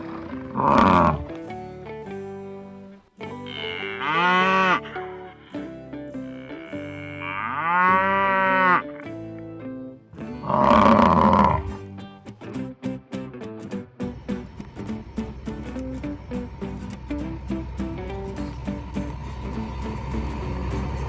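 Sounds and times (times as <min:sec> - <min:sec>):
cow bellowing: 0:00.0 - 0:01.3, 0:03.4 - 0:05.6, 0:06.2 - 0:09.0, 0:10.4 - 0:11.7
soft background music: 0:00.0 - 0:12.2, 0:14.1 - 0:21.0
cow mooing: 0:00.4 - 0:01.3, 0:03.5 - 0:05.2, 0:06.2 - 0:09.0, 0:10.4 - 0:11.7.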